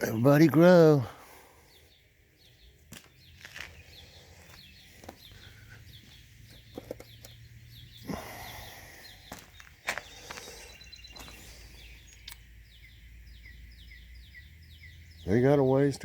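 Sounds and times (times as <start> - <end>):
songbirds chirping: 0.0 - 16.0
soft clicks: 12.1 - 12.4.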